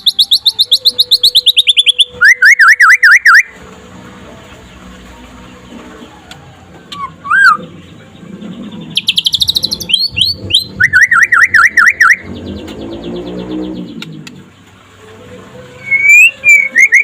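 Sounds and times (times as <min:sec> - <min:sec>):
songbird whistling and trilling: 0:00.0 - 0:03.6, 0:06.3 - 0:07.7, 0:08.8 - 0:14.3, 0:15.8 - 0:17.0.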